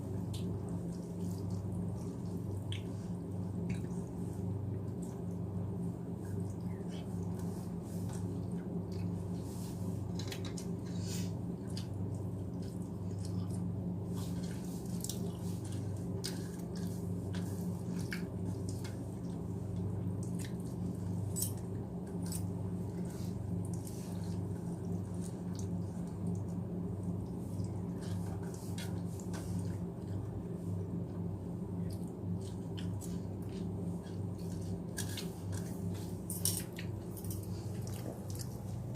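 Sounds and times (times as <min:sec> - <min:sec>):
steady low hum: 0:00.0 - 0:38.9
wet chewing and mouth clicks: 0:00.3 - 0:03.0, 0:36.6 - 0:38.9.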